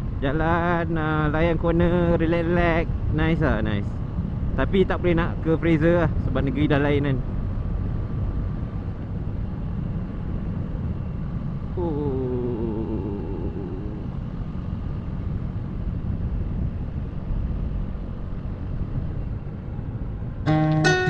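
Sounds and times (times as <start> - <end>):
wind rumble: 3.8 - 20.5.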